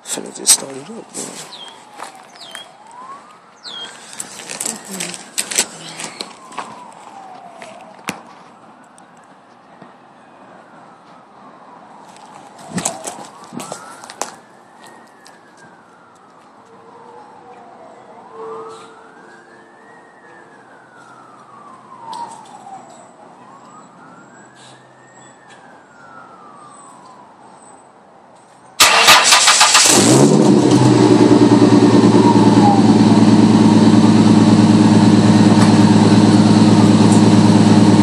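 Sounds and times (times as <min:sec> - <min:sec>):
distant siren wailing: 0:00.1 - 0:28.2, 0:28.8 - 0:38.0
car engine cranking and idling: 0:28.8 - 0:38.0.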